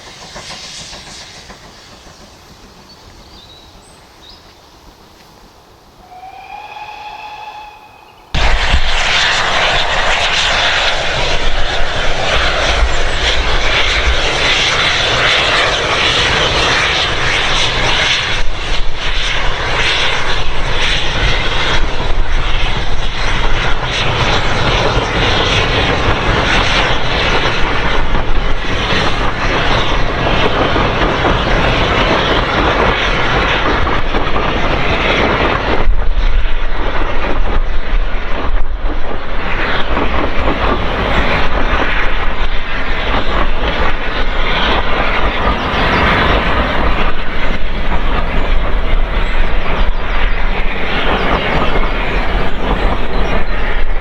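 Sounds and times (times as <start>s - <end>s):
loud steady rushing roar: 5.9s - 54.0s
distant steam locomotive whistle: 6.0s - 10.6s.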